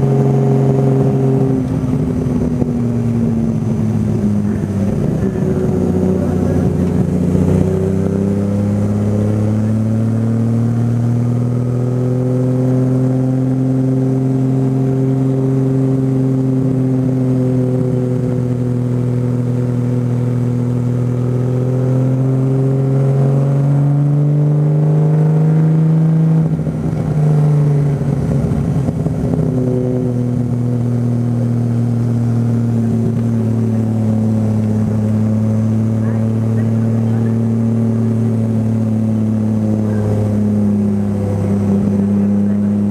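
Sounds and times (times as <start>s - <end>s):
car engine running: 0.0s - 42.9s.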